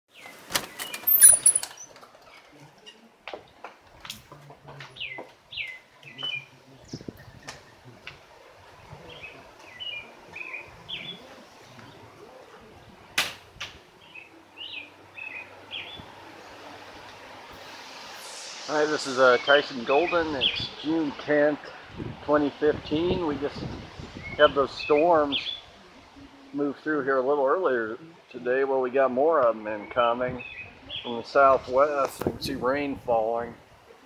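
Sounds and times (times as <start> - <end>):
small birds chirping: 0.1 - 3.1, 4.7 - 13.2, 13.8 - 17.2, 29.6 - 31.4.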